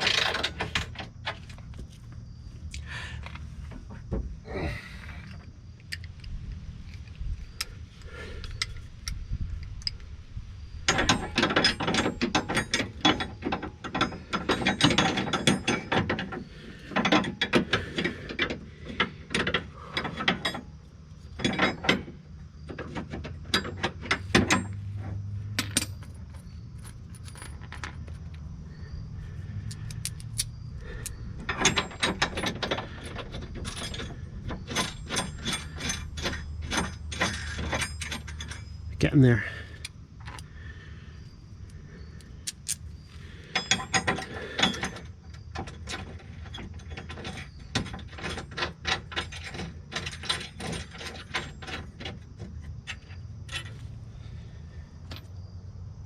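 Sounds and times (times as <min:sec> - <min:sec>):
socket ratchet clicking: 0:29.7 - 0:31.2.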